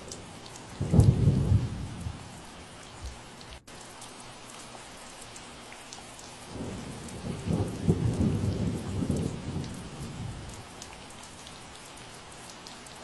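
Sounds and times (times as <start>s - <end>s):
steady rain falling: 0.0s - 13.0s
low roll of thunder: 0.6s - 2.4s, 6.5s - 11.5s.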